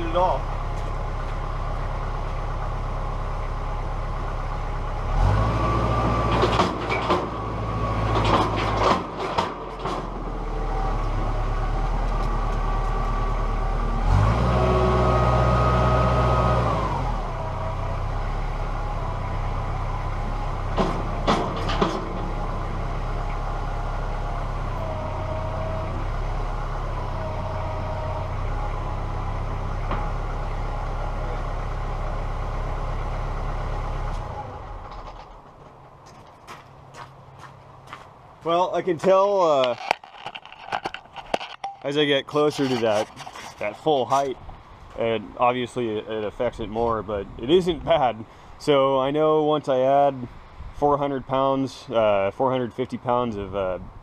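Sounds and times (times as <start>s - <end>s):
tractor engine revving: 0.0s - 36.0s
metal clanks from loader: 6.2s - 10.5s, 20.7s - 22.6s, 34.1s - 36.5s, 39.5s - 44.4s.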